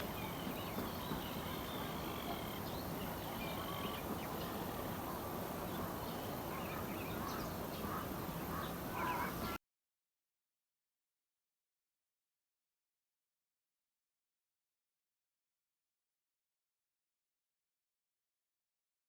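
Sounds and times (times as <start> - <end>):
birds calling: 0.0 - 9.6
steady outdoor hiss: 0.0 - 9.6.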